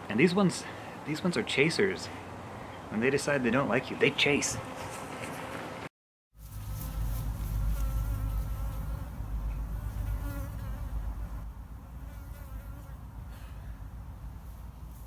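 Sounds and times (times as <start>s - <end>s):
honeybees buzzing: 6.8s - 13.0s
bee flying close whining: 7.5s - 11.4s.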